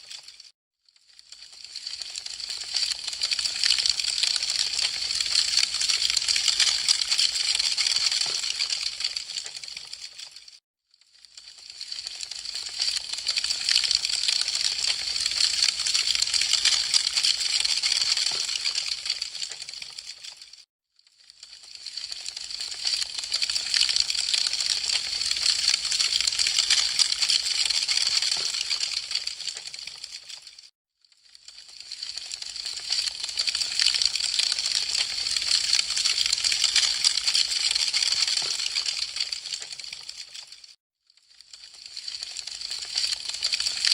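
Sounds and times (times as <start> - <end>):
wood fire crackling: 1.4 - 7.3, 8.5 - 9.2, 13.4 - 17.4, 18.5 - 20.4.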